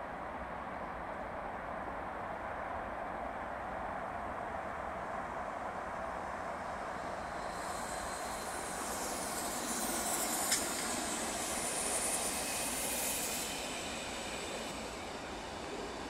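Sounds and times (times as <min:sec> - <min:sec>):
train wheels rushing on rails: 0:03.8 - 0:16.0.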